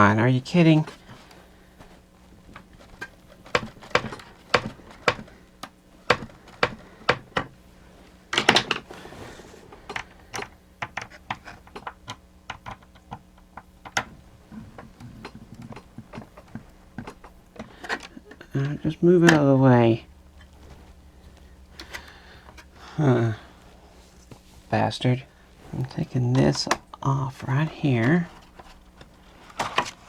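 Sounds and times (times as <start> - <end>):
plastic parts clicking and knocking: 0.8 - 7.6, 8.3 - 8.9, 9.7 - 19.5, 25.8 - 30.0.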